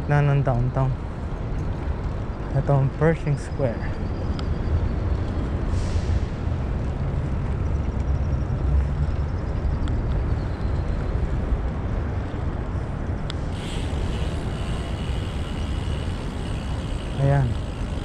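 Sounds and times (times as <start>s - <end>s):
wind rumble on microphone: 3.8s - 18.0s.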